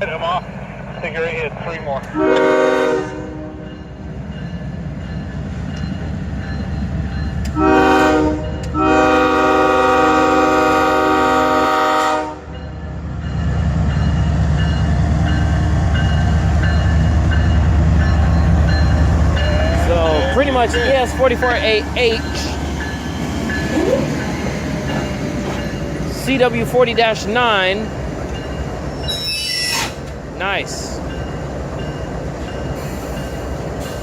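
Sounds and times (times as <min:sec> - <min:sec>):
locomotive engines rumbling: 0:00.0 - 0:34.0
locomotive horn blasts: 0:02.1 - 0:03.7, 0:07.5 - 0:12.5.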